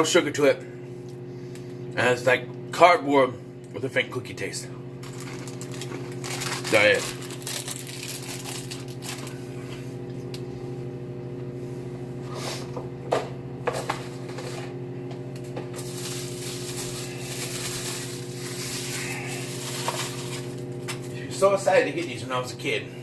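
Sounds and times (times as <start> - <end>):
microwave oven humming: 0.0 - 23.0.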